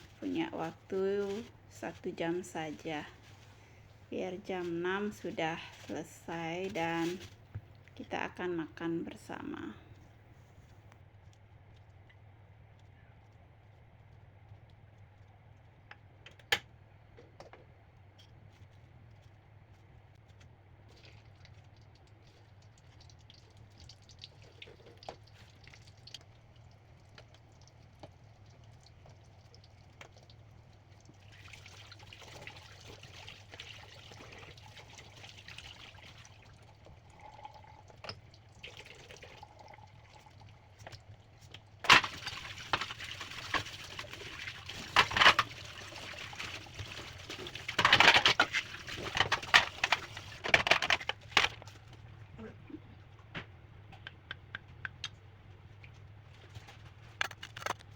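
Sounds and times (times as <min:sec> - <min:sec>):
water splashing in sink: 0:27.0 - 0:51.7.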